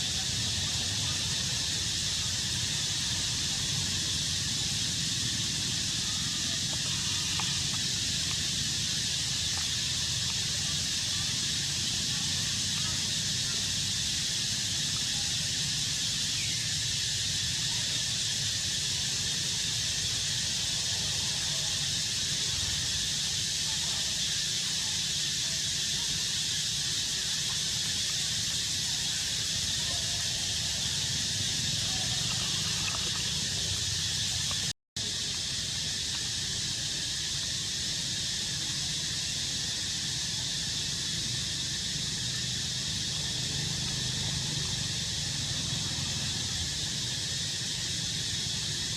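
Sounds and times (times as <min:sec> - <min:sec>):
high-pitched outdoor hiss: 0:00.0 - 0:48.9.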